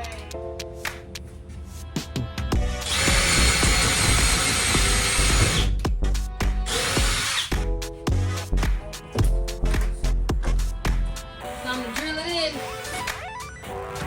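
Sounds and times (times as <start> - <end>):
background music: 0.0 - 14.0
power drill drilling into wood: 2.7 - 5.8, 6.7 - 7.5.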